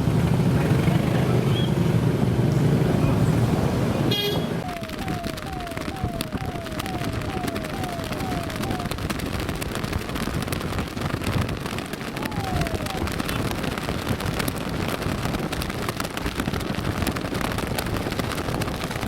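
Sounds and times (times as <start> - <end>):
wind and road noise: 0.0 - 19.0
electronic siren yelping: 4.6 - 9.1, 12.2 - 13.4.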